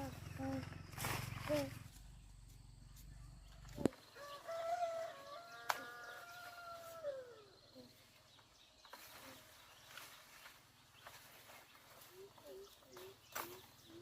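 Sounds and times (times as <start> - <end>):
rooster crowing: 3.5 - 7.4.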